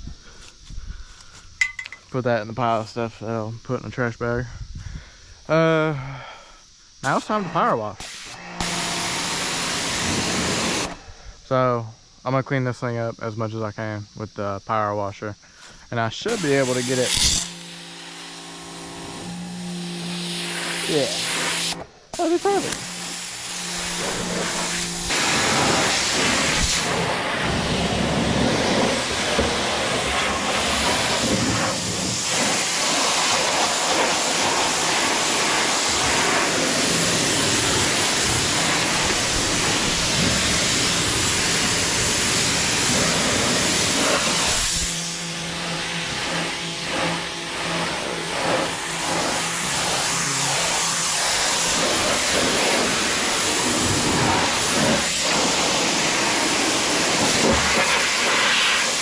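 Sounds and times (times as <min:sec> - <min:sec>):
pressure washer spraying water: 0:08.0 - 0:11.0, 0:16.2 - 0:59.0.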